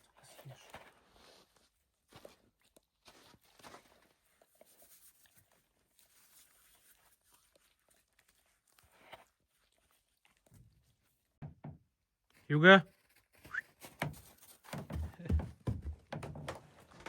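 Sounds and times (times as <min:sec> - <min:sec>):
soft knocks: 0:11.4 - 0:11.8.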